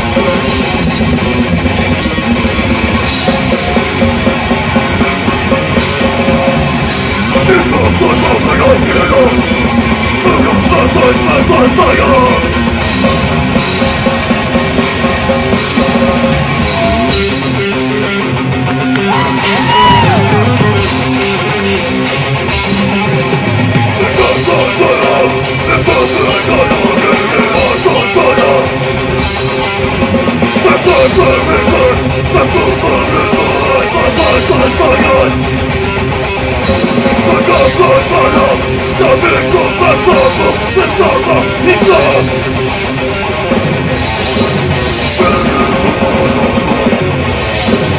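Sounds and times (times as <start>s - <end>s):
distorted electric guitars: 0.0s - 47.9s
drum kit: 0.0s - 47.9s.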